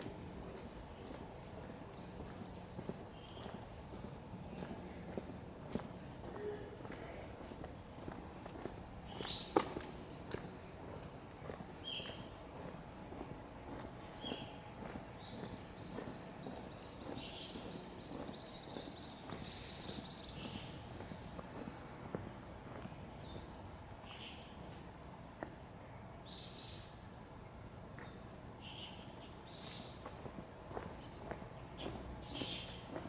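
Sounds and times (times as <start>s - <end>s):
soft footsteps: 0.0s - 23.8s
low background hum: 0.0s - 33.0s
small birds chirping: 0.6s - 5.2s, 8.6s - 25.1s, 27.6s - 33.0s.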